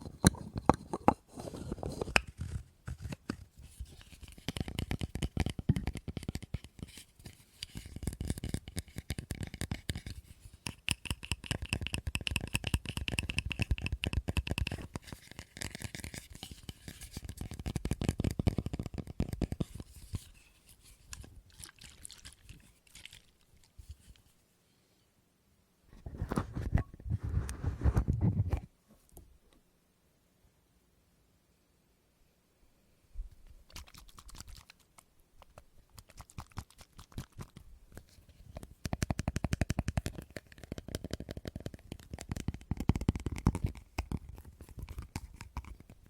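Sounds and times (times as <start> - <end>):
rapid tapping on hard object: 7.8 - 20.3, 38.7 - 45.9.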